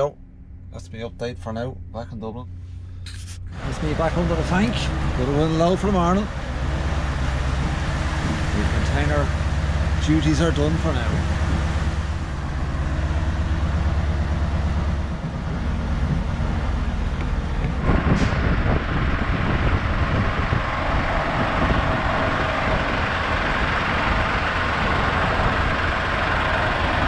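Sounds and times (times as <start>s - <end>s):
truck diesel engine running: 0.0s - 27.0s.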